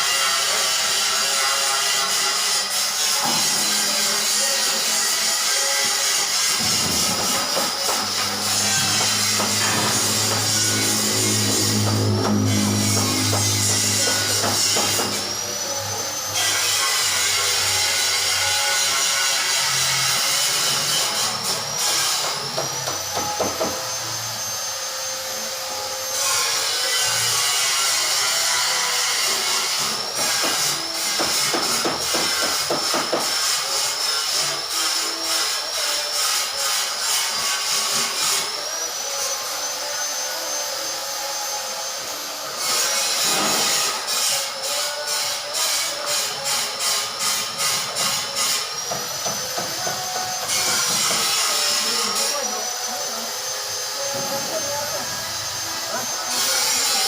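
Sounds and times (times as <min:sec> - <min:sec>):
power tool hissing and whining: 0:00.0 - 0:57.0
grinding noise: 0:02.8 - 0:35.5.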